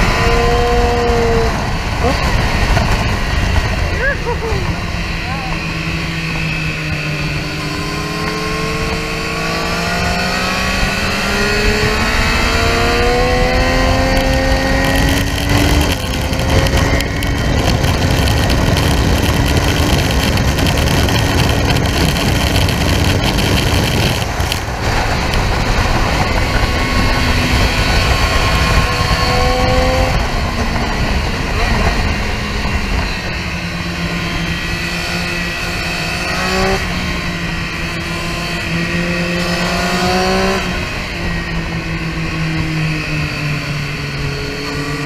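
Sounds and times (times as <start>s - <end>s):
heavy wind rush: 0.0s - 45.0s
motorcycle engine accelerating: 0.0s - 45.0s.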